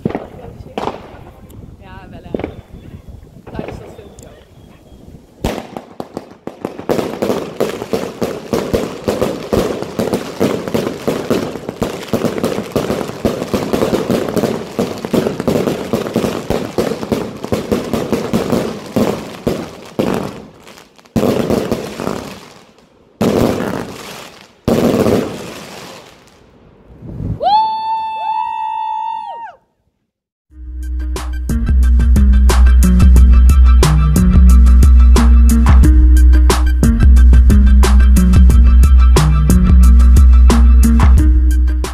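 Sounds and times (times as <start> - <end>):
fireworks barrage: 0.0 - 27.9
loud firework bursts: 0.0 - 28.0.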